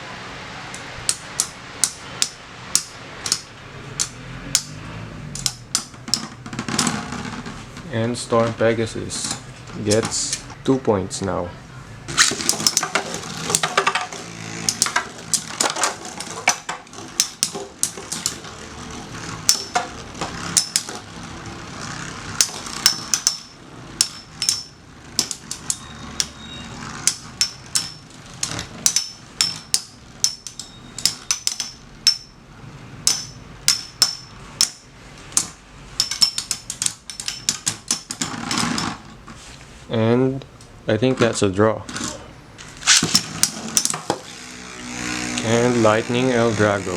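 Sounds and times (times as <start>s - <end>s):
metal clacks of tops clashing: 12.1s - 21.2s, 22.0s - 26.4s, 27.0s - 32.4s, 33.0s - 39.1s
spinning tops whirring: 12.1s - 39.3s, 42.1s - 46.9s.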